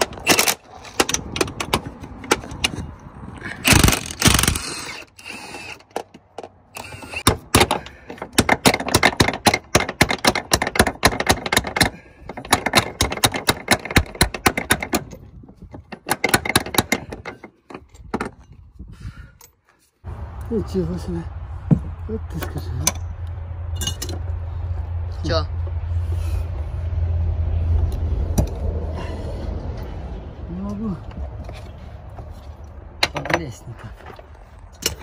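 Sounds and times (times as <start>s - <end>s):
tools clattering on metal: 23.8s - 24.2s, 33.0s - 35.0s.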